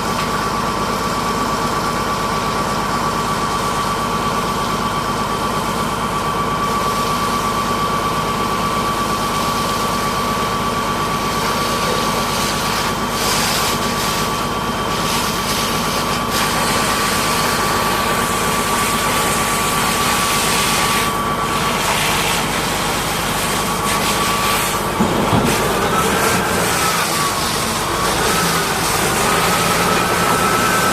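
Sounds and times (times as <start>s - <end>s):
pressure washer motor whine: 0.0s - 30.9s
hissing water spray: 11.3s - 30.9s.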